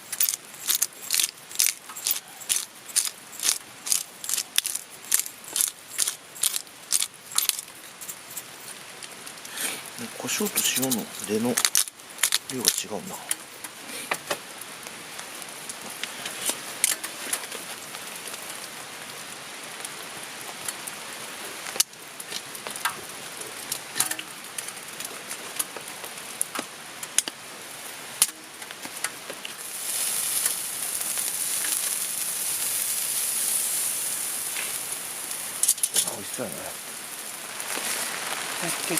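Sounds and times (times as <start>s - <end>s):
crackling campfire: 0.0s - 38.9s
rain on a tarp: 0.0s - 38.9s
high hiss: 29.6s - 38.9s.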